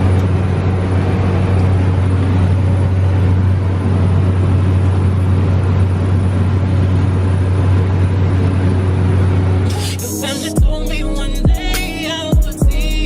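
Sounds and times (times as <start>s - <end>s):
vehicle drone: 0.0s - 13.0s
rush of noise: 5.9s - 13.0s.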